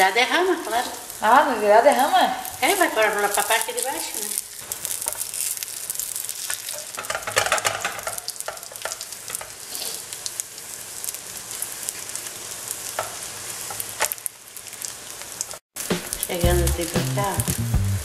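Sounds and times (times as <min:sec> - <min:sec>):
omelette sizzling in oil: 0:00.0 - 0:17.6
spatula scraping and tapping pan: 0:06.7 - 0:09.6.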